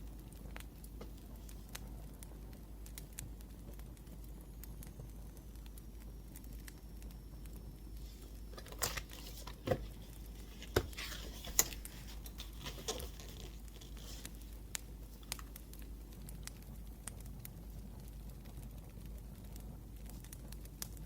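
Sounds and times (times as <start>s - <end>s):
fire popping: 0.0s - 21.0s
wood fire crackling: 0.0s - 21.0s
paper rustling and crinkling: 8.0s - 15.9s.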